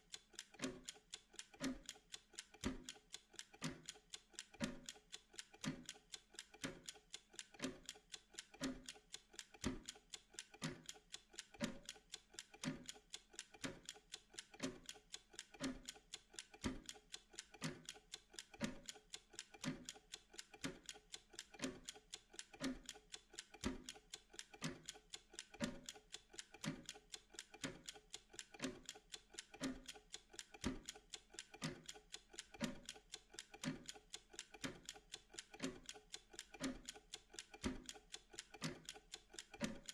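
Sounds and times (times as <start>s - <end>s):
timer ticking: 0.0s - 39.9s.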